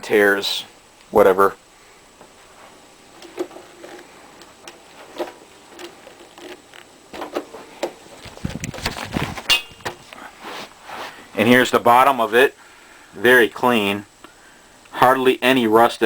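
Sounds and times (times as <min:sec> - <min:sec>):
vacuum cleaner being handled: 0:03.2 - 0:10.2.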